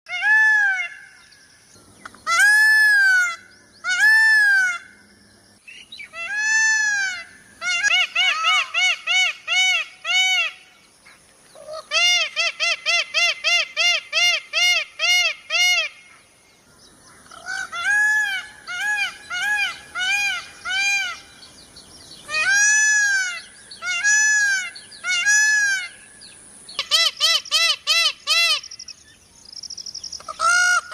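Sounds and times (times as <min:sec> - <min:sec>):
peacock honking calls: 0:06.1 - 0:10.7, 0:22.3 - 0:26.1, 0:26.7 - 0:28.8, 0:30.2 - 0:30.9.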